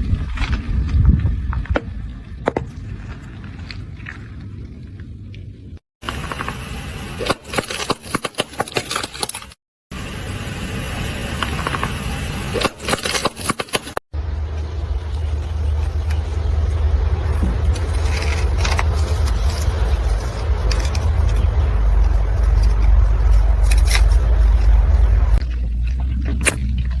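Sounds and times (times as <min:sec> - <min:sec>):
car rumbling: 0:14.2 - 0:27.0.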